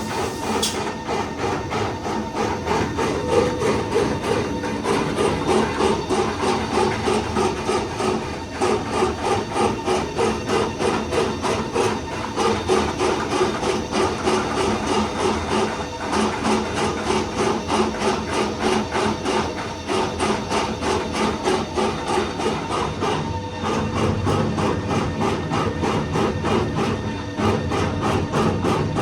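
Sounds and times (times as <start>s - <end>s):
band saw machine clattering: 0.0s - 9.0s.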